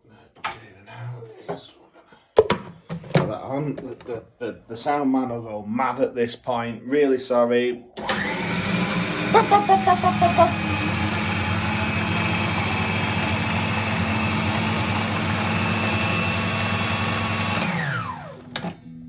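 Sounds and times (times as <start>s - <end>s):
blender motor spinning down: 8.0s - 18.8s
electric blender running: 8.0s - 18.8s.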